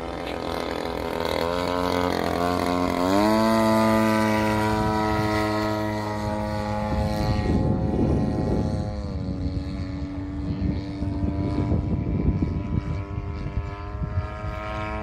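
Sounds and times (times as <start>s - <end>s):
model airplane engine: 0.0s - 15.0s.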